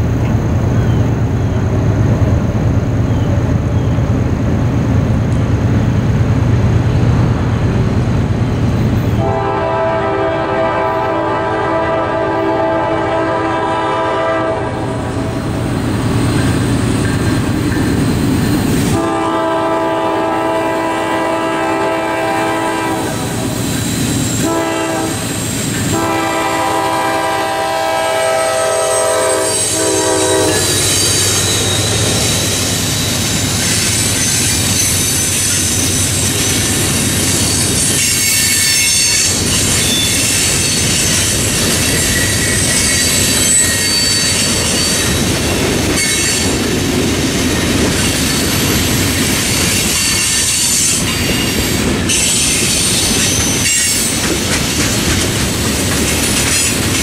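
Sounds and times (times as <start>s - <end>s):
train wheels on rail: 0.0s - 57.0s
train horn blasts: 9.2s - 15.3s, 18.9s - 23.4s, 24.4s - 32.1s, 38.0s - 40.8s
high-pitched wheel squeal: 28.6s - 46.6s, 49.4s - 54.2s.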